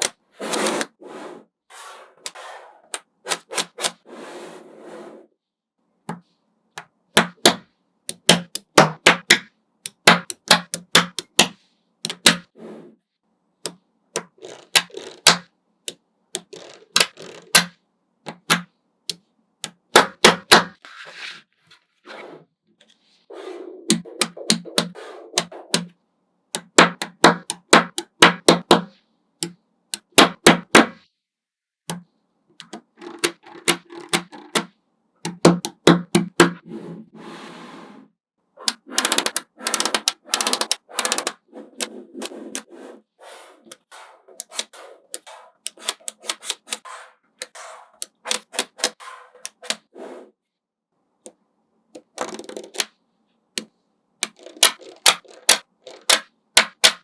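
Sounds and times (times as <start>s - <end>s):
magnetic balls clicking: 0.0s - 0.2s, 6.1s - 12.5s, 13.6s - 20.8s, 23.9s - 26.0s, 26.6s - 31.0s, 31.9s - 36.6s, 38.6s - 42.7s, 43.7s - 46.8s, 47.4s - 49.8s, 52.0s - 52.9s, 53.6s - 57.0s.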